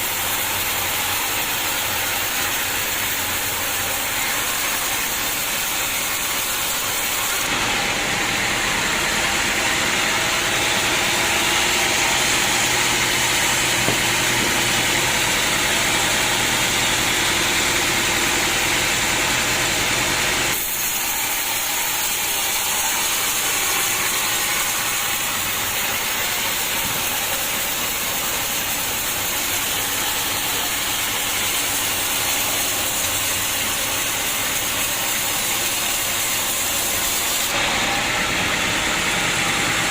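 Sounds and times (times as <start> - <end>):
sawmill machine hissing: 0.0 - 39.9.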